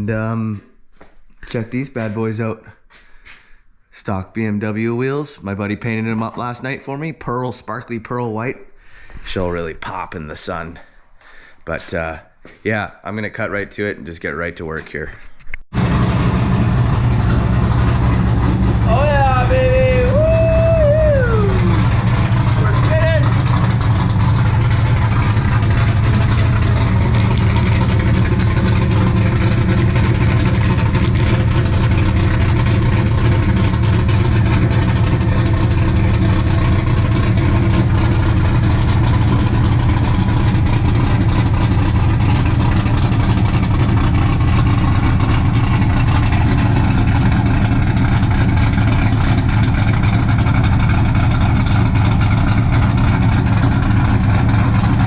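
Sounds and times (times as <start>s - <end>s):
car engine idling: 15.7s - 55.0s.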